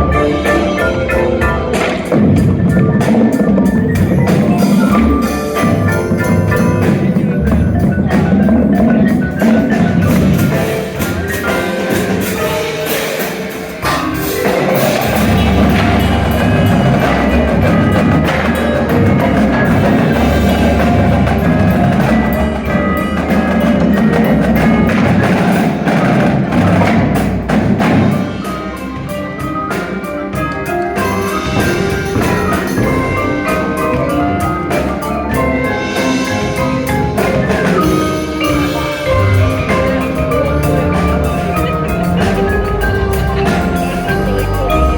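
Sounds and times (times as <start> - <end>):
percussion section playing: 0.0 - 44.9
wind instruments holding notes: 0.0 - 44.9.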